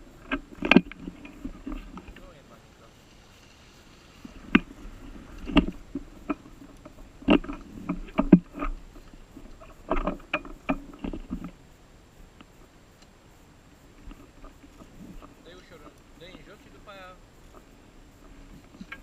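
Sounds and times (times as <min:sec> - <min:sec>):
clunks and knocks: 0:04.4 - 0:11.6.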